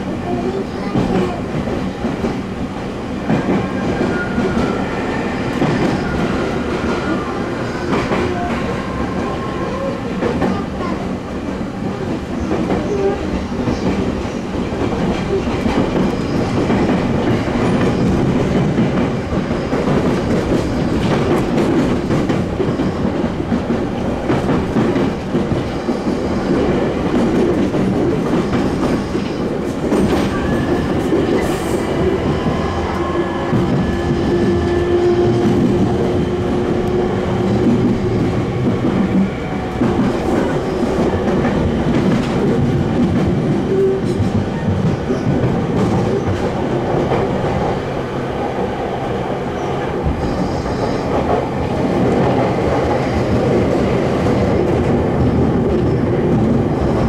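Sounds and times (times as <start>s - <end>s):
train rumble: 0.0s - 57.0s
train wheels clacking over rail joints: 11.9s - 47.9s.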